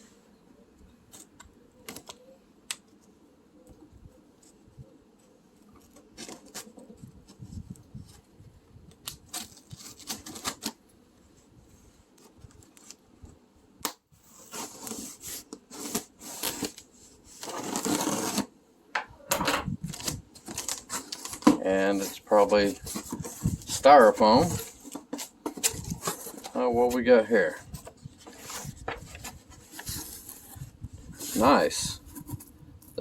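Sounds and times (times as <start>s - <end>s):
cardboard scraping and rustling: 5.6s - 8.4s, 9.1s - 10.8s, 14.2s - 18.5s, 19.3s - 32.6s.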